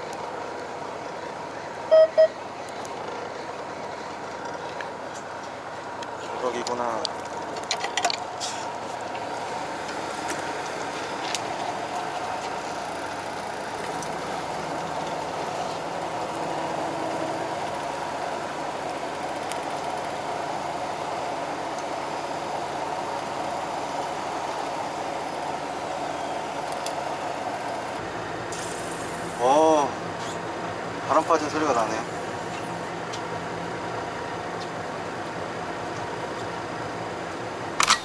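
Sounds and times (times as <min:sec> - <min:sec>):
boat engine running: 0:09.1 - 0:32.9.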